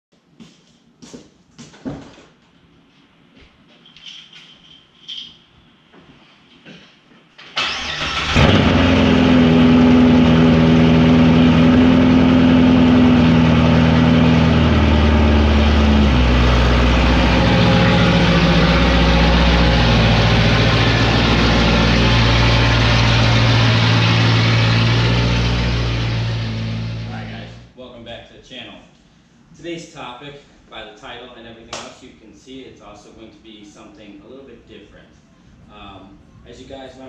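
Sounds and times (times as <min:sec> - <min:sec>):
car engine starting and idling: 0:07.6 - 0:27.7.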